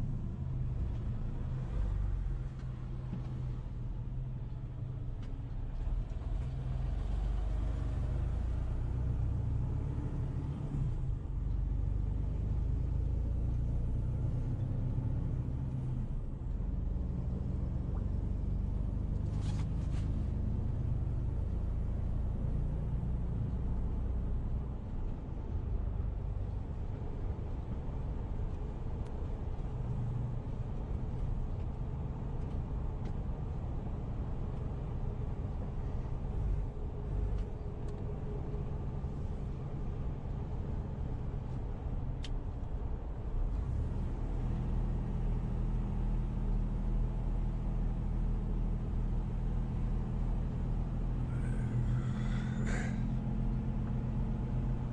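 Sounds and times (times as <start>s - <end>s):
vehicle rumbling on the move: 0.0s - 54.9s.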